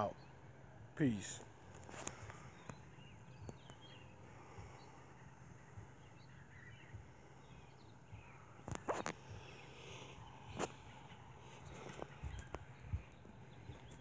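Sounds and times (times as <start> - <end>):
bird chirps: 0.0 - 14.0
faint outdoor ambience: 0.0 - 14.0.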